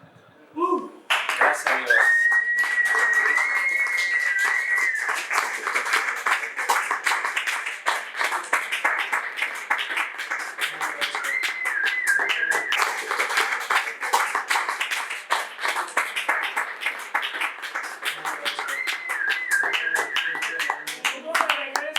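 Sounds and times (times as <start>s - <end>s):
audience clapping: 1.0s - 21.9s
high wavering whistle: 1.6s - 6.4s, 10.8s - 13.8s, 18.2s - 21.2s.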